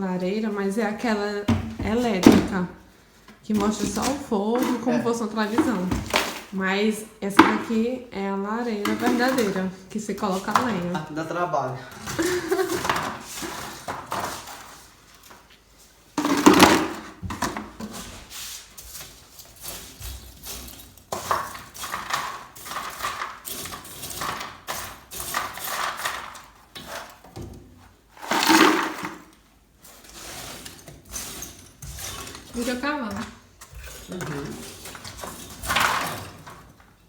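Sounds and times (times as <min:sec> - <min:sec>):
metal tools scraping and clanking: 0:29.9 - 0:36.8.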